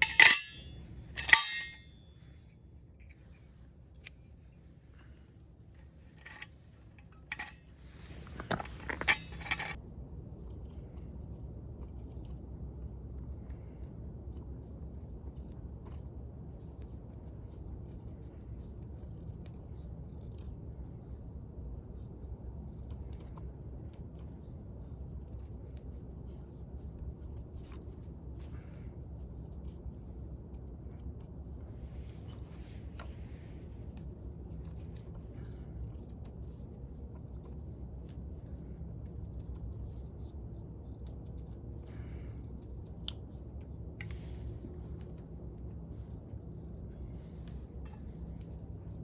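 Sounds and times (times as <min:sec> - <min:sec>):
fire starter scraping strikes: 0:00.0 - 0:02.3, 0:06.1 - 0:09.8.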